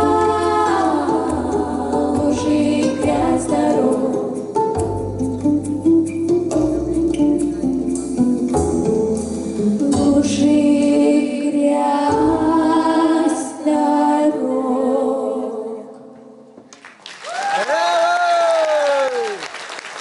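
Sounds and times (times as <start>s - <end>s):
vocal quartet singing in harmony: 0.0s - 5.2s, 9.4s - 16.6s
instrumental backing: 0.0s - 13.2s.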